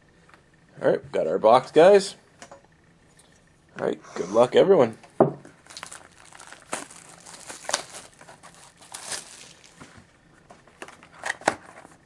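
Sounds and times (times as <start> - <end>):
packaging crinkling and rustling: 5.5 - 12.0
sharp crackles: 5.6 - 9.9.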